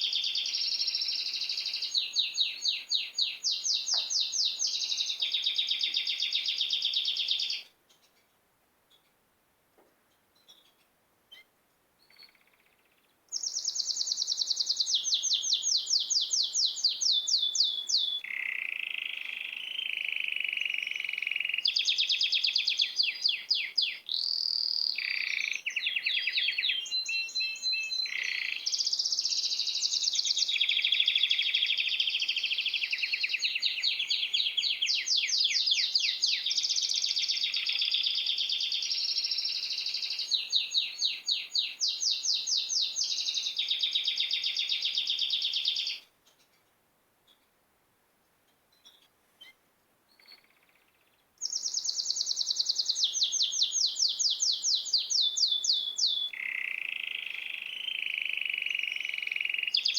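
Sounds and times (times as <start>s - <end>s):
songbird trilling: 0.0s - 7.6s, 13.3s - 46.0s, 51.4s - 59.9s.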